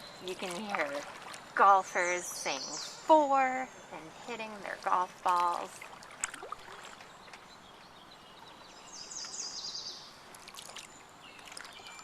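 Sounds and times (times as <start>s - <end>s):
water dripping off paddle: 0.2s - 2.8s, 4.6s - 7.5s, 10.3s - 12.0s.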